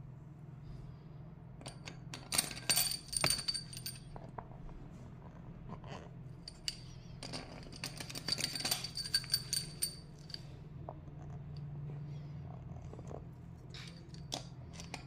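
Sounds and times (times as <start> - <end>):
steady low hum: 0.0 - 15.0
metal tools clinking: 1.7 - 4.4, 6.4 - 10.6, 13.7 - 15.0.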